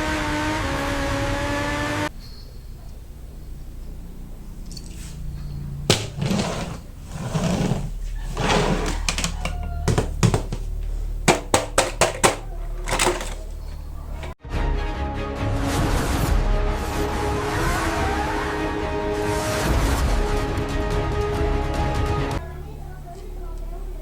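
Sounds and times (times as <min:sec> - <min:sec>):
rustling plastic and cardboard: 0:05.9 - 0:14.4
sharp clicks and knocks: 0:11.3 - 0:14.4.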